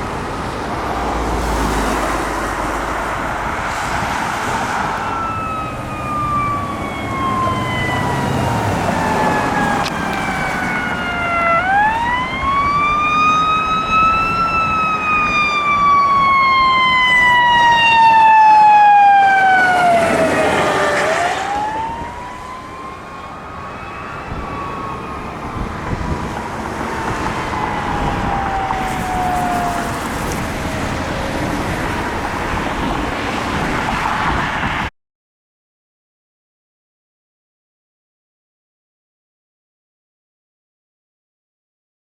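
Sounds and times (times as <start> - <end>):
truck engine and tyres passing: 0.0 - 34.9
fire truck siren wailing: 1.4 - 34.9.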